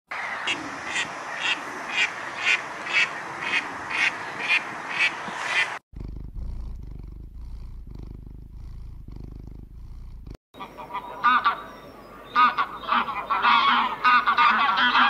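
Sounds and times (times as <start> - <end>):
geese calling: 0.1 - 5.8, 10.6 - 15.0
kitten purring: 5.9 - 10.4.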